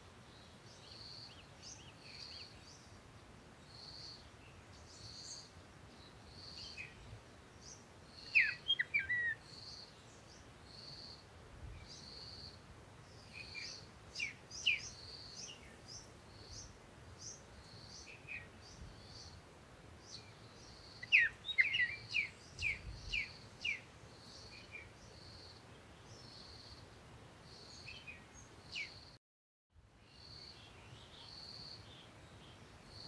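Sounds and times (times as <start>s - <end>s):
birds chirping: 7.6s - 10.4s, 20.0s - 26.5s.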